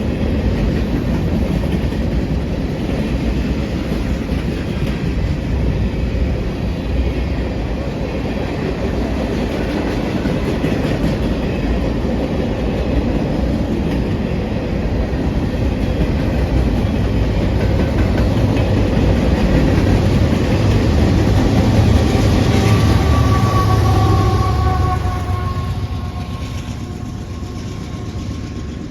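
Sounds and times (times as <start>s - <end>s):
freight train rolling past: 0.0s - 28.9s
wheels clacking over rail joints: 15.2s - 28.9s.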